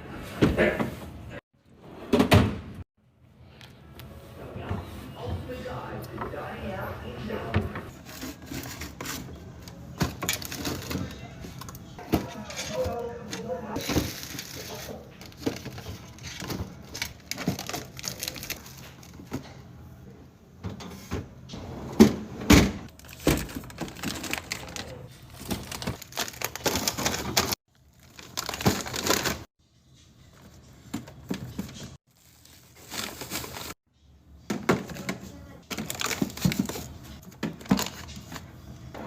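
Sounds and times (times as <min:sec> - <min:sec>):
packaging crinkling: 0:13.8 - 0:19.1, 0:22.9 - 0:29.5, 0:32.1 - 0:33.8, 0:35.7 - 0:36.9.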